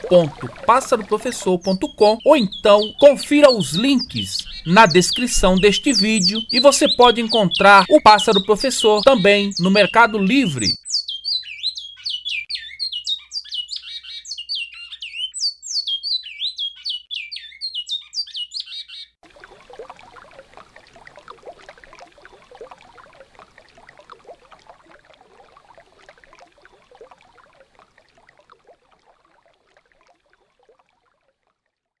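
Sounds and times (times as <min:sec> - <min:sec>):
rushing river water: 0:00.0 - 0:10.7
finch singing whistled notes: 0:00.1 - 0:19.2.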